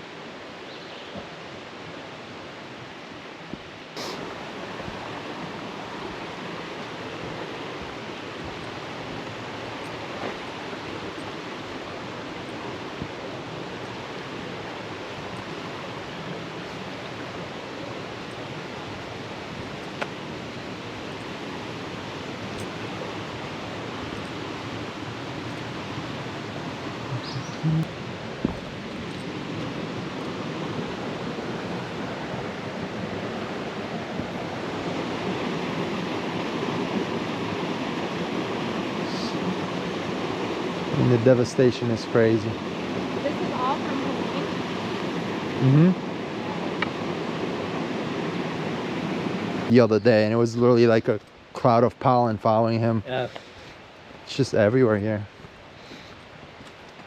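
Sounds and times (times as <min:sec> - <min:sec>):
waterfall rushing: 0:01.3 - 0:50.4
short low tone: 0:27.1 - 0:27.9, 0:45.6 - 0:46.0.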